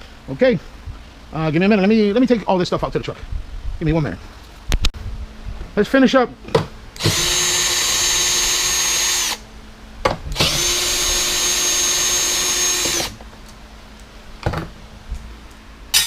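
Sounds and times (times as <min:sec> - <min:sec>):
cordless drill whining: 0:07.0 - 0:09.4, 0:10.3 - 0:13.2.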